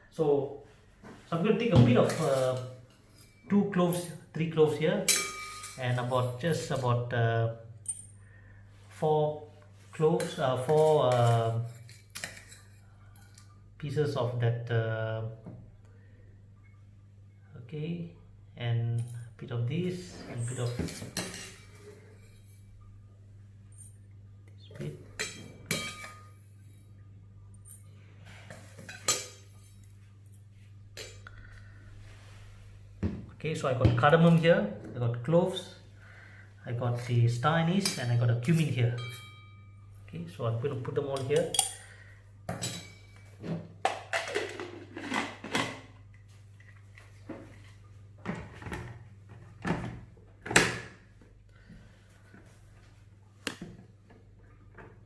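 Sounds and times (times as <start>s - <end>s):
low steady hum: 0.0s - 55.0s
dishes and utensils clinking: 5.0s - 6.8s, 10.2s - 13.5s, 20.4s - 22.6s, 24.8s - 26.9s, 27.6s - 30.0s, 37.8s - 39.8s, 41.2s - 45.7s.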